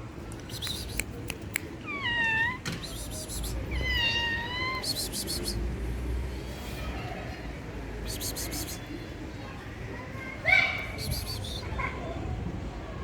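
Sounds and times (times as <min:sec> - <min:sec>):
kitten meowing: 0:00.6 - 0:05.5.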